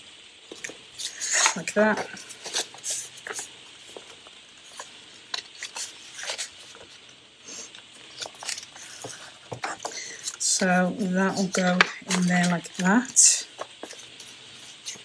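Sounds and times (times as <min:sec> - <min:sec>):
paper rustling: 0:00.5 - 0:15.0.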